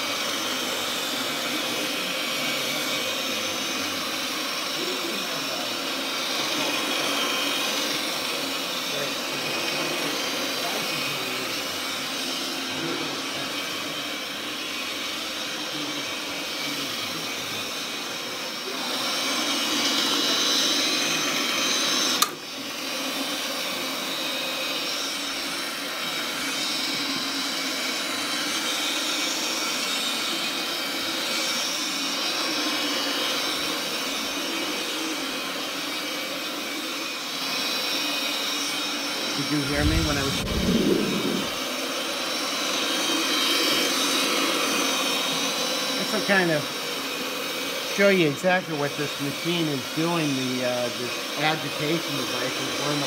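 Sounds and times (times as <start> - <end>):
carpet machine whirring: 21.0 - 24.0, 39.4 - 41.8.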